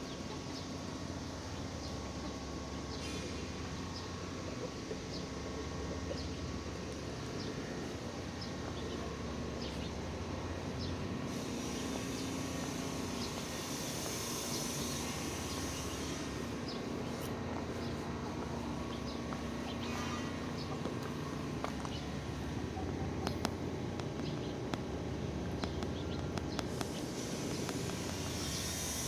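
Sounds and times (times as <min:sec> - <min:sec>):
broad hiss: 0:10.6 - 0:18.0, 0:26.4 - 0:29.0.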